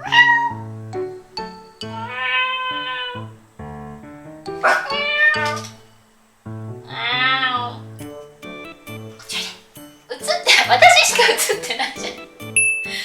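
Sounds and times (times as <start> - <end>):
woman imitating cat meows: 0.0 - 0.6, 4.8 - 5.7, 6.9 - 7.8
background music: 0.0 - 13.0.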